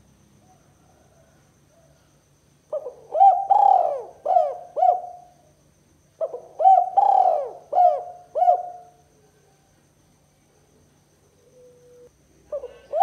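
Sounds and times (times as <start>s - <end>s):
dove cooing: 2.7s - 5.4s, 6.2s - 9.0s, 11.4s - 13.0s.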